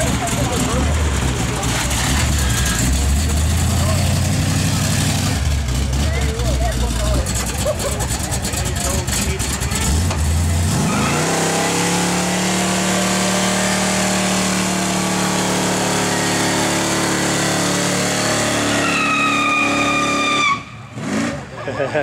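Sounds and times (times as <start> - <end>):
tyres spinning on pavement: 0.0 - 11.4
car engine revving: 0.0 - 21.7
high-pitched tyre squeal: 1.9 - 3.3, 10.7 - 21.4.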